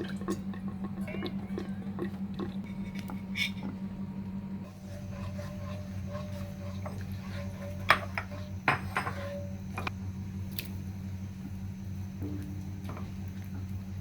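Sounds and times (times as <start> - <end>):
utensil clinking on cookware: 5.0 - 9.9.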